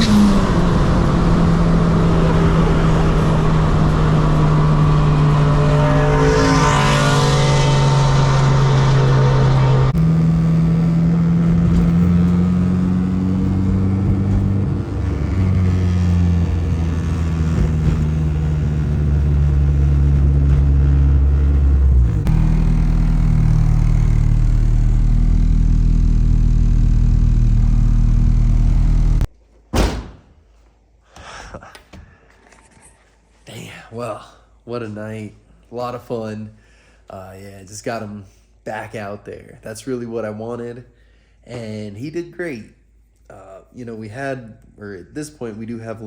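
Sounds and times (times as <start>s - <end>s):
car engine running: 0.0s - 29.3s.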